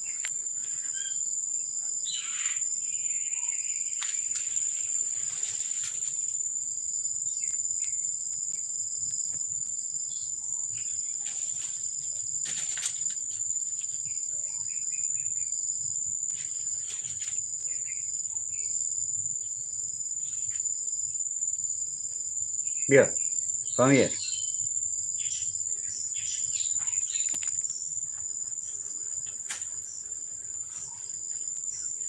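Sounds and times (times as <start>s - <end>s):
crickets chirping: 0.0s - 32.0s.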